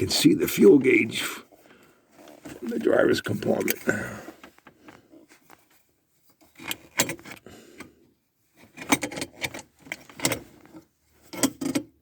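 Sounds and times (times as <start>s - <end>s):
gauge and hose clicks and rattles: 6.4s - 7.9s, 8.6s - 12.0s.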